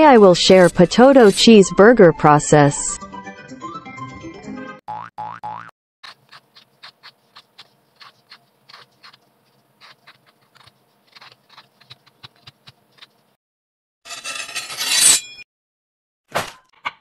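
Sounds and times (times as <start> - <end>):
peeler scraping potato skin: 6.0 - 13.2.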